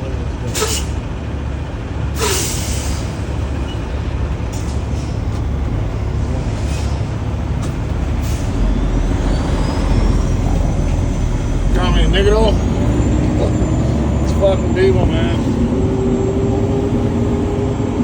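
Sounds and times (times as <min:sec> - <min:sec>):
diesel engine idling: 0:00.0 - 0:18.0
air brake hissing: 0:00.5 - 0:01.0, 0:02.2 - 0:03.2, 0:06.6 - 0:07.1, 0:08.2 - 0:10.1.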